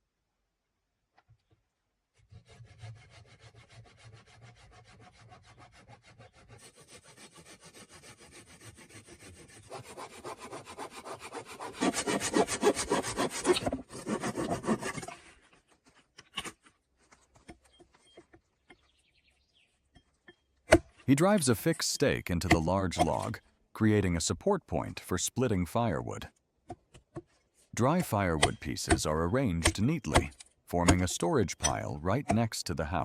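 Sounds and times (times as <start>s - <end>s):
hand saw cutting wood: 2.1s - 15.6s, 22.4s - 23.3s, 28.3s - 29.0s.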